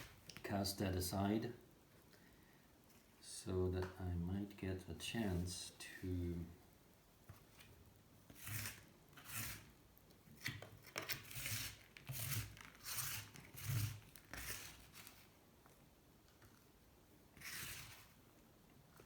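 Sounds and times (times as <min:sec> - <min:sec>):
rough scraping on metal: 0:08.4 - 0:09.7, 0:11.2 - 0:15.1, 0:17.4 - 0:18.2.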